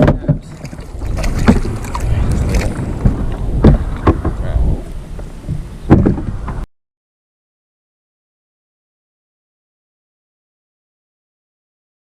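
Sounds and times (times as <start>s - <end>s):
knocks and bumps: 0.0s - 4.6s, 5.4s - 6.7s
wind buffeting microphone: 0.0s - 6.7s.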